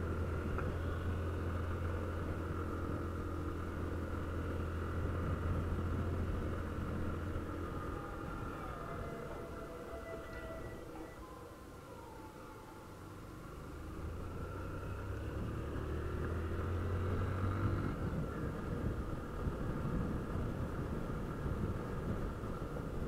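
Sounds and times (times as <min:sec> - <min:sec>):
wind and road noise: 0:00.0 - 0:23.0
motorcycle engine pulling away: 0:13.4 - 0:22.2.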